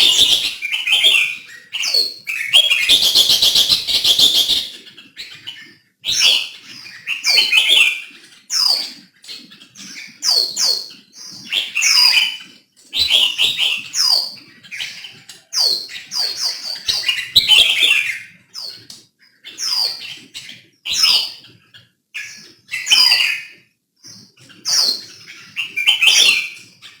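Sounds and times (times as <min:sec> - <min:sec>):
bird singing whistled phrases: 0:25.5 - 0:26.6.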